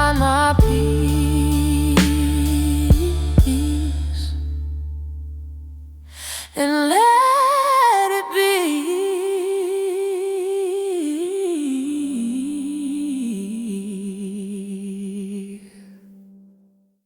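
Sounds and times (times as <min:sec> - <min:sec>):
sparse music: 0:00.0 - 0:05.3
low sustained note: 0:00.4 - 0:06.1.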